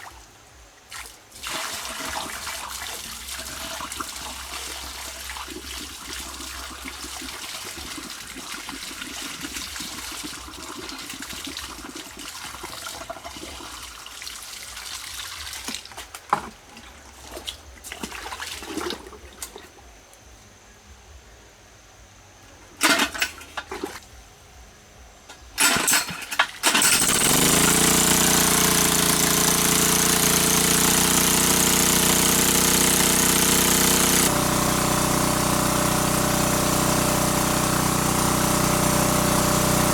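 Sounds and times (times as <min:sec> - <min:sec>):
water running: 0:01.4 - 0:17.3, 0:27.2 - 0:39.9
small engine running: 0:03.2 - 0:07.9, 0:25.6 - 0:39.9.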